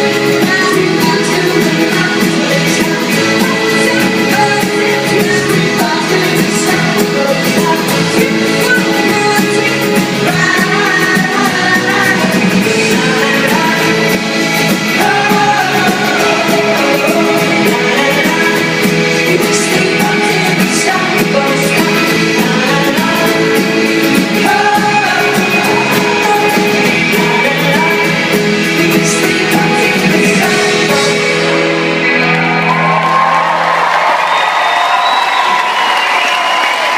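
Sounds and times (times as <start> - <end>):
person singing: 0.0 - 33.5
drums: 0.0 - 36.9
rock band playing live: 0.0 - 36.9
crowd whooping and cheering: 31.7 - 36.9.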